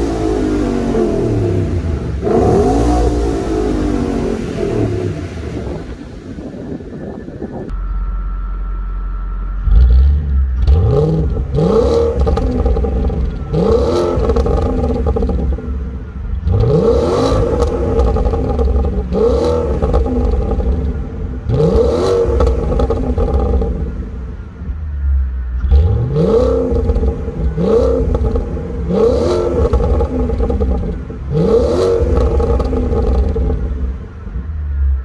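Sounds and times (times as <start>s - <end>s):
car engine revving: 0.0s - 35.0s
exhaust crackles and pops: 9.8s - 35.0s.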